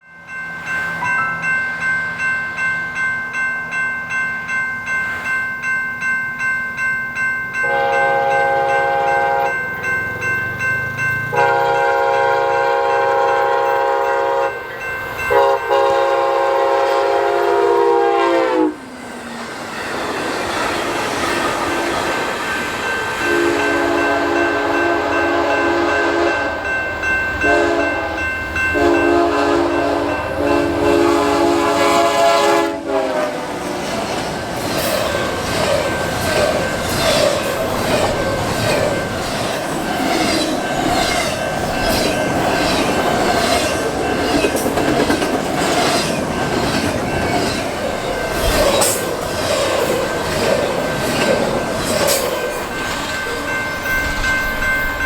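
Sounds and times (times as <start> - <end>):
train rumbling past: 0.1 - 55.0
locomotive horn blasts: 7.6 - 9.6, 11.3 - 18.9, 23.2 - 26.6, 27.4 - 33.6
wheels clacking over rail joints: 33.6 - 55.0.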